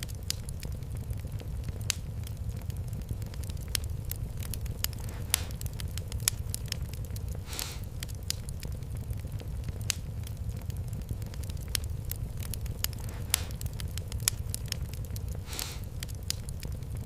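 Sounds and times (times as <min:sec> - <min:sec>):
wood fire crackling: 0:00.0 - 0:17.0
short hiss: 0:07.4 - 0:07.9, 0:15.4 - 0:15.9.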